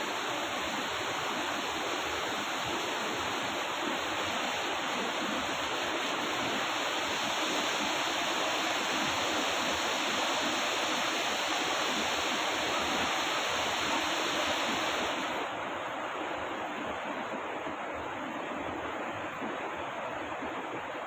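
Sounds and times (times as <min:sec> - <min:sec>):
waterfall rushing: 0:00.0 - 0:18.5.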